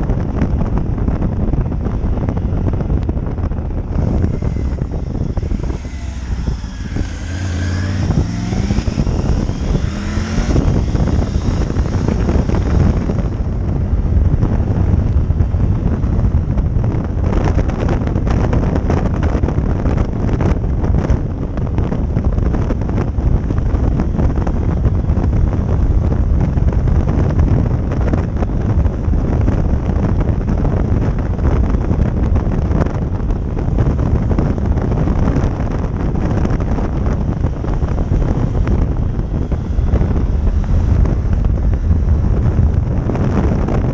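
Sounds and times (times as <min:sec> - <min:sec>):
motorcycle engine accelerating: 0:00.0 - 0:43.9
road noise: 0:00.0 - 0:43.9
wind buffeting microphone: 0:00.0 - 0:43.9.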